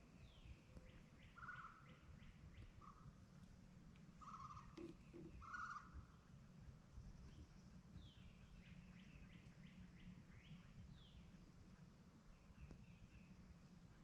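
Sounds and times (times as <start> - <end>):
low outdoor rumble: 0.0 - 14.0
bird calls: 0.1 - 3.2, 4.2 - 6.2.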